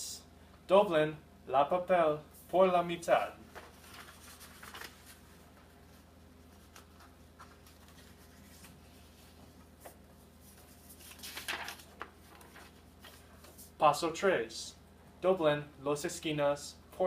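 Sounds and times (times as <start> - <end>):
paper rustling and creasing: 3.5 - 13.8.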